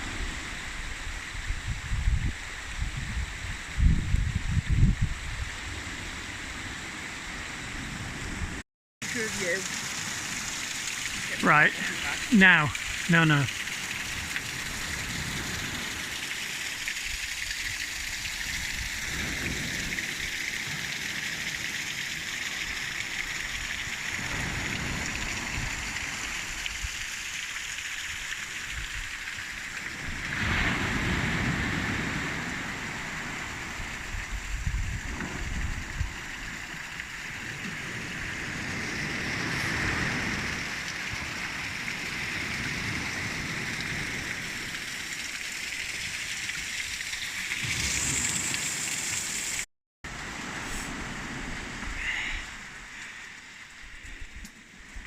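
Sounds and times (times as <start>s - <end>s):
wind buffeting microphone: 1.3s - 6.3s, 30.0s - 36.4s.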